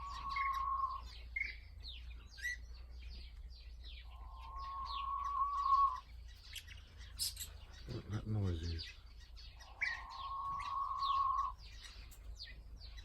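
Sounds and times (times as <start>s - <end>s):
cage birds chirping: 0.0s - 13.0s.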